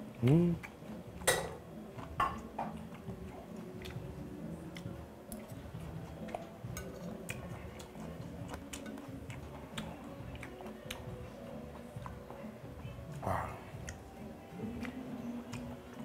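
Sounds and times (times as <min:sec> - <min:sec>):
person chewing: 0:02.0 - 0:12.2, 0:13.1 - 0:16.0
chopsticks clicking on a plate: 0:08.5 - 0:11.0.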